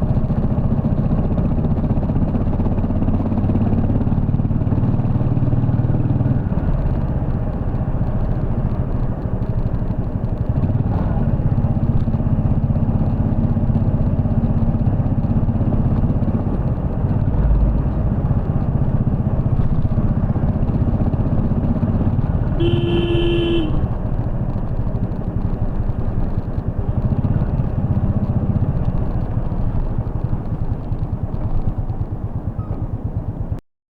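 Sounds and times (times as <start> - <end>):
motorcycle engine thumping: 6.8 - 33.5
vehicle horn: 22.5 - 24.0.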